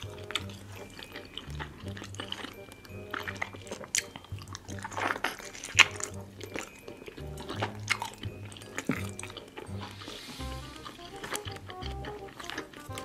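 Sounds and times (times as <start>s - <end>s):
wet chewing and lip smacks: 0.0s - 13.0s
background music with bass line: 4.4s - 5.2s, 7.2s - 13.0s.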